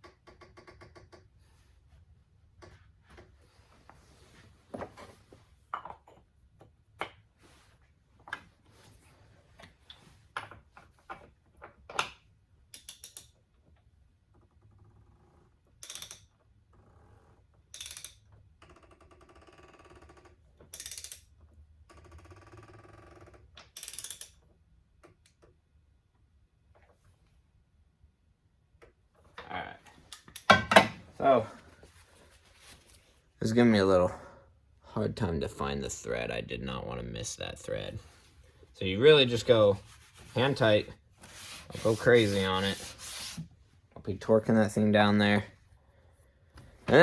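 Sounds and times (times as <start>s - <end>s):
tools clicking and knocking: 9.6s - 13.8s, 15.8s - 16.4s, 17.7s - 18.8s, 20.1s - 21.5s, 23.5s - 25.6s, 30.0s - 31.0s.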